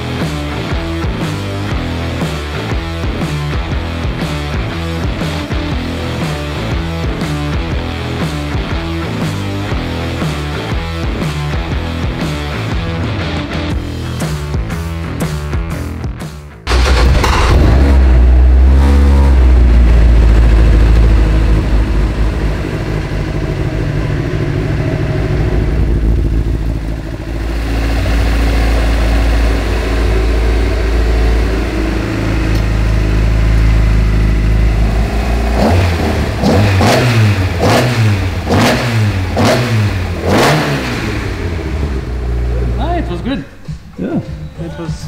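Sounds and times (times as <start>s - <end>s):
race car engine blipped: 16.6s - 45.0s
race car engine droning: 16.7s - 43.3s.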